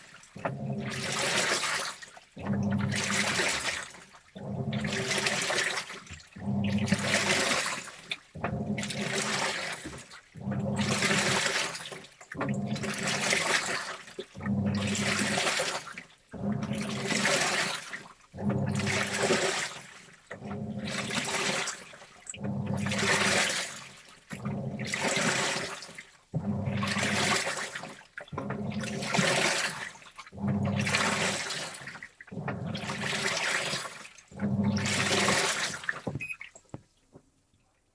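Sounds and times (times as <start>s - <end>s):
washing machine drum turning: 10.4s - 11.5s, 12.4s - 13.5s, 16.4s - 17.7s, 18.4s - 19.6s, 22.4s - 23.5s, 28.4s - 29.8s, 30.4s - 31.5s, 32.4s - 33.7s, 34.4s - 36.5s.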